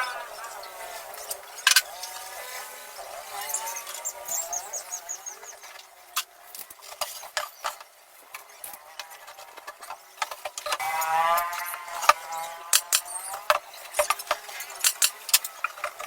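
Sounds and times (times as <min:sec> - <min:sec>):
high chirps: 0:00.0 - 0:05.8
clicks of small hard objects: 0:06.1 - 0:16.0.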